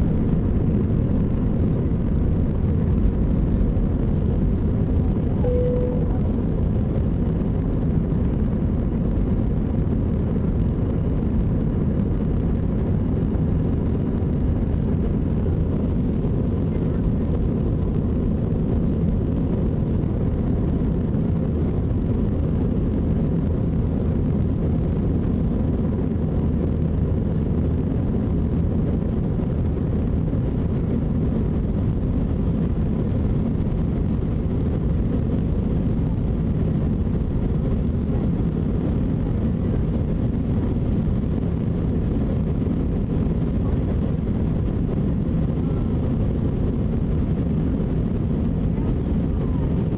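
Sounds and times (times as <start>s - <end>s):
jet cabin drone: 0.0s - 49.9s
faint thin tone: 5.3s - 6.6s.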